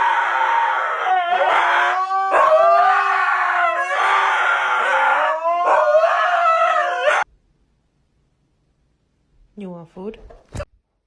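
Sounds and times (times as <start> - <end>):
dog howling: 0.0 - 7.3.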